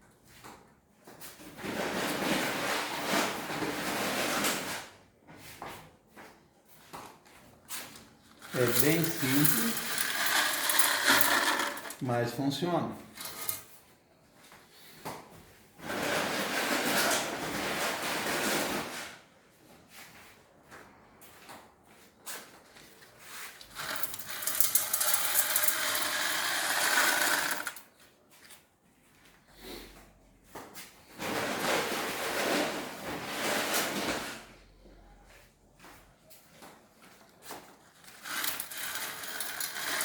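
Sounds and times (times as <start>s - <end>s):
stones rattling and scraping: 8.3s - 12.0s, 13.2s - 13.6s, 23.6s - 27.8s, 38.0s - 40.0s.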